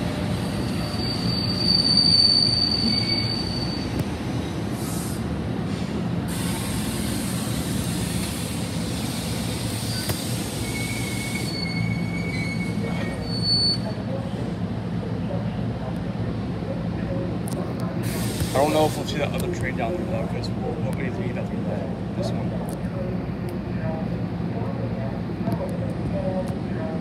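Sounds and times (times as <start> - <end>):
train wheels rumbling on rails: 0.0 - 27.0
high-pitched wheel squeal: 0.5 - 4.0, 9.8 - 14.0
low wheel squeal: 0.5 - 4.0, 9.8 - 14.0.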